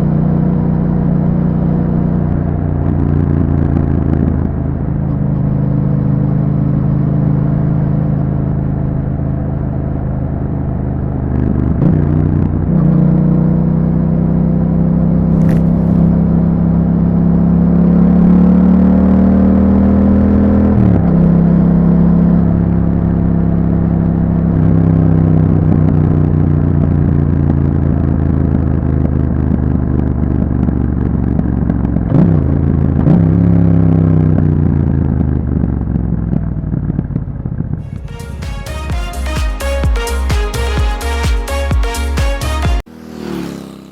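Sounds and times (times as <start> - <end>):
motorcycle engine running: 15.3 - 16.2, 42.8 - 43.9.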